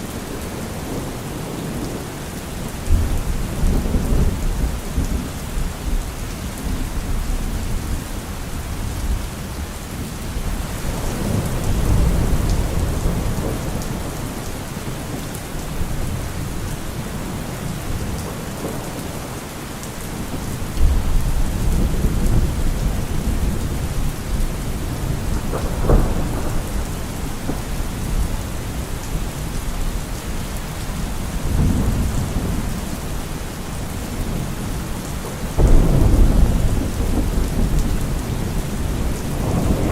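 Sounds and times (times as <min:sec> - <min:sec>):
heavy rain: 0:00.0 - 0:39.9
thunder rumbling: 0:10.3 - 0:15.2, 0:20.2 - 0:34.8, 0:35.4 - 0:39.9
thunder clap: 0:24.8 - 0:28.2, 0:35.6 - 0:39.9.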